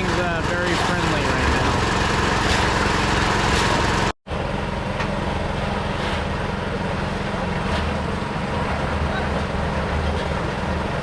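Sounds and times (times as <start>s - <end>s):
small engine running: 0.0s - 7.6s.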